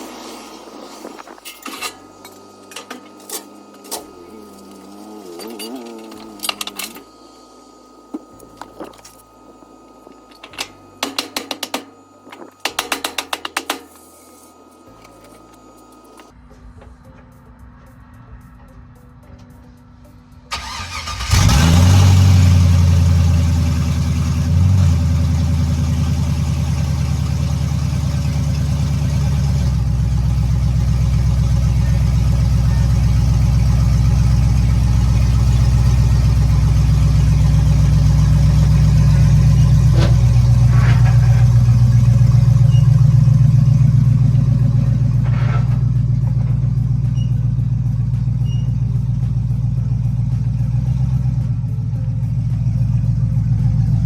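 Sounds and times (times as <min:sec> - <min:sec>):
car engine starting and idling: 0:20.5 - 0:54.0.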